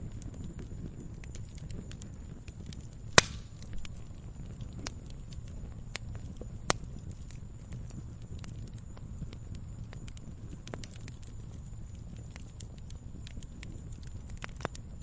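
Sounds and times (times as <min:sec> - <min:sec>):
fire crackling: 0:00.0 - 0:15.0
fire flames rumbling: 0:00.0 - 0:15.0
loud sharp pop of fire: 0:03.1 - 0:03.9.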